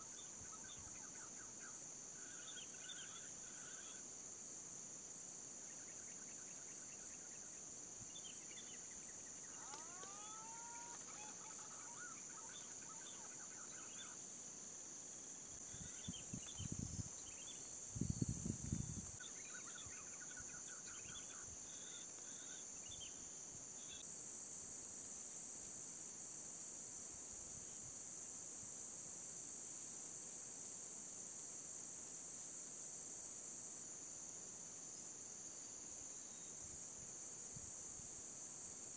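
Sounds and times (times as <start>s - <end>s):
high-pitched insect drone: 8.3s - 14.5s.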